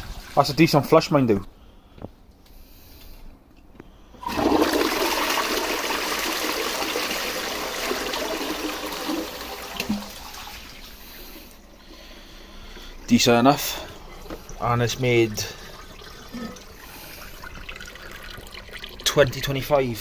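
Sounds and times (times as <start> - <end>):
toilet flushing: 0.0 - 1.0, 4.2 - 20.0.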